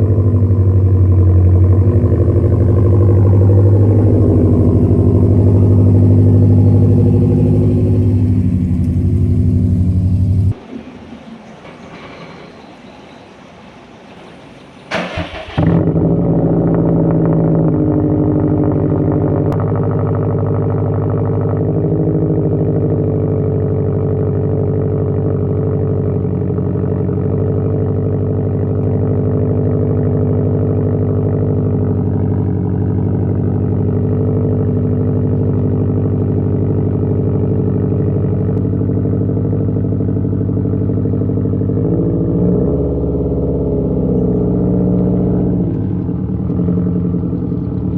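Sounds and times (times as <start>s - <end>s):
car engine cranking and starting: 0.0s - 10.6s, 14.7s - 47.9s
car engine fast idle: 14.8s - 16.1s.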